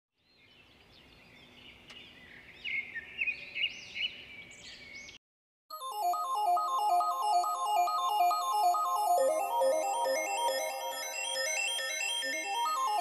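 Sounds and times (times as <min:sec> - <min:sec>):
birds chirping: 0:00.2 - 0:05.2.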